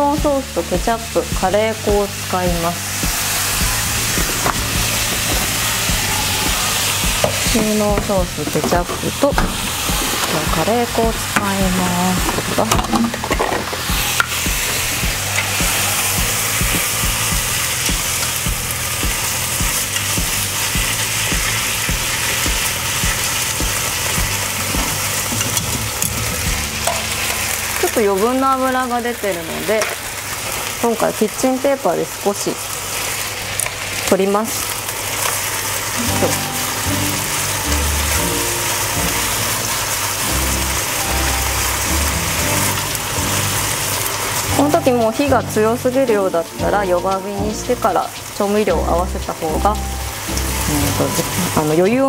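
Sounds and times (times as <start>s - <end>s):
background music: 0.0s - 30.2s, 35.9s - 52.0s
meat and eggplant sizzling in a pan: 0.0s - 52.0s.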